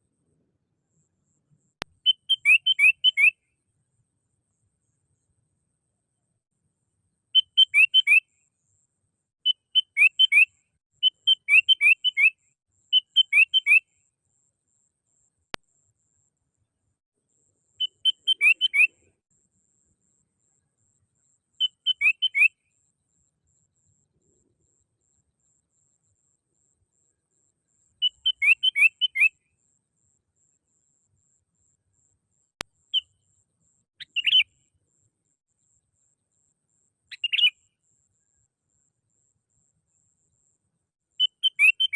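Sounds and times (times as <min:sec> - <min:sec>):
faint click: 0:01.0 - 0:02.0
bulbul calling: 0:01.8 - 0:03.4, 0:07.4 - 0:08.3, 0:09.4 - 0:13.9, 0:17.8 - 0:19.1, 0:21.6 - 0:22.6, 0:28.0 - 0:29.4, 0:34.0 - 0:34.6, 0:37.1 - 0:37.7, 0:41.2 - 0:41.9.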